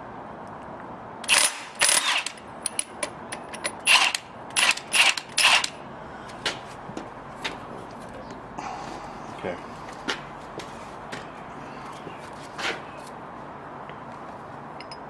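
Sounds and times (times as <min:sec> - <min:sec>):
ratchet wrench clicking: 0:01.3 - 0:02.9, 0:03.6 - 0:05.7.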